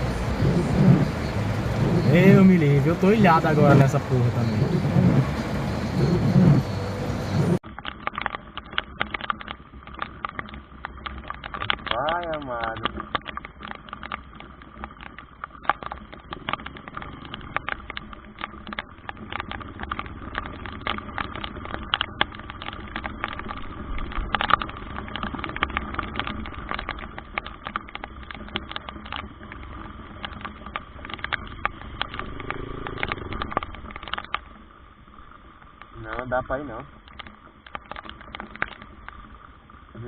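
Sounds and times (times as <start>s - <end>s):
low rumble: 0.0s - 7.6s, 29.4s - 35.3s
heavy rain: 0.0s - 40.0s
raindrops tapping near microphone: 0.0s - 40.0s.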